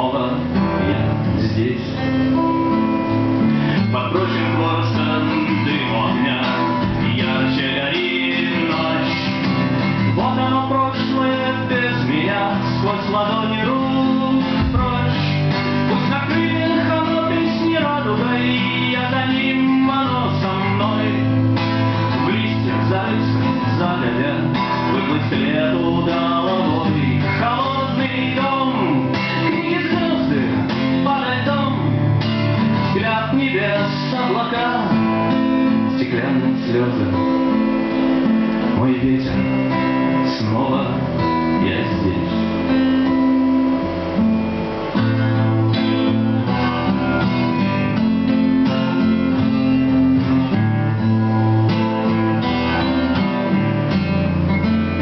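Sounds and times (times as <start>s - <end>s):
man singing: 0.0s - 43.3s
acoustic guitars strumming: 0.0s - 55.0s.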